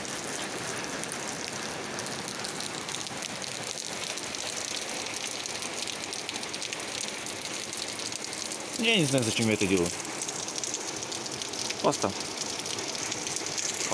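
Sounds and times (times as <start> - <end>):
steady rain falling: 0.0 - 13.9.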